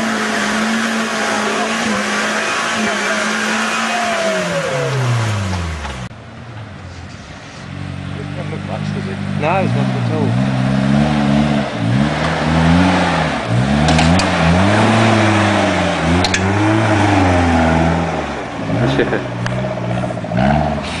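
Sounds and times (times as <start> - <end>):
engine revving: 0.0 - 6.1, 7.1 - 21.0.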